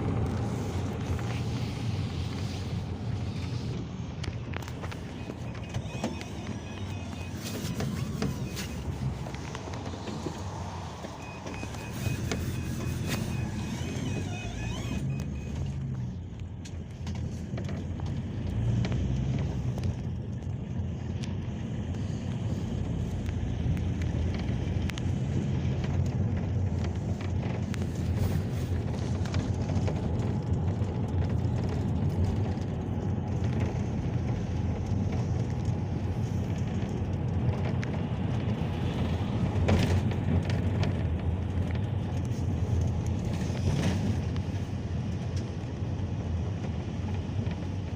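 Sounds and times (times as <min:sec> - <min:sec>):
engine and road rumble: 0:00.0 - 0:47.9
quick high beeps: 0:05.1 - 0:08.8, 0:11.2 - 0:15.6.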